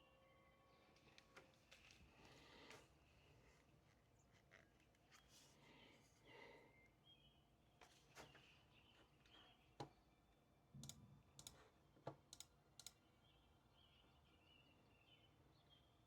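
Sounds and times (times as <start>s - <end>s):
faint sharp clicks and taps: 7.8s - 10.0s.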